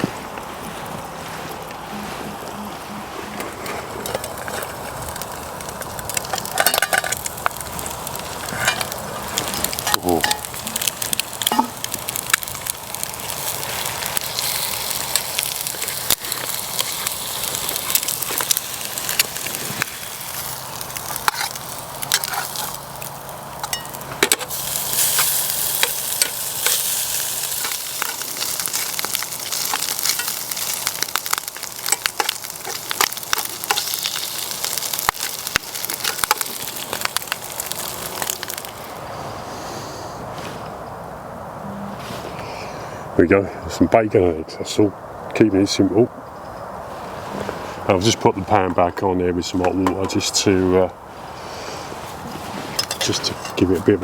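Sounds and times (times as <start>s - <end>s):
wood fire crackling and popping: 0.0s - 39.1s
bacon and eggs sizzling in a pan: 4.0s - 39.0s.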